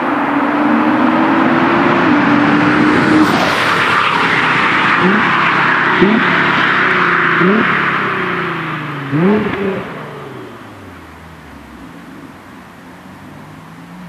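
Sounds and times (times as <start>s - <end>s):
car engine and exhaust: 0.0s - 14.0s.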